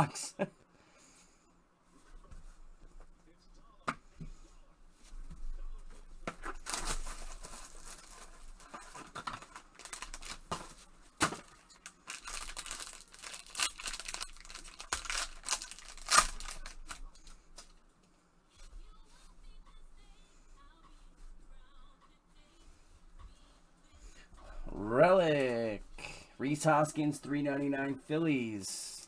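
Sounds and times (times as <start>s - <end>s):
plastic wrap and cardboard tearing: 6.0s - 17.8s.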